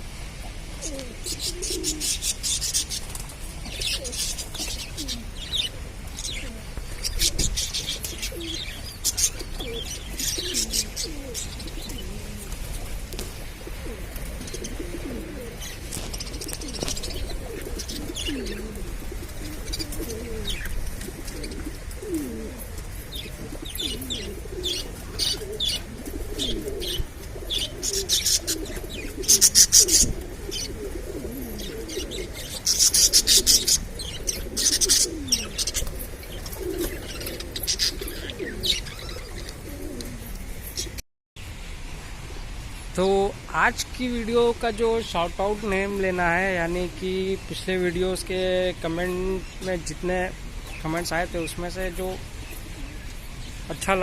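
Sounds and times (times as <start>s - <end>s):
pigeons cooing: 0.0s - 41.0s, 45.6s - 54.0s
budgerigars chirping: 0.8s - 3.0s, 3.7s - 12.1s, 14.4s - 22.2s, 23.1s - 39.6s.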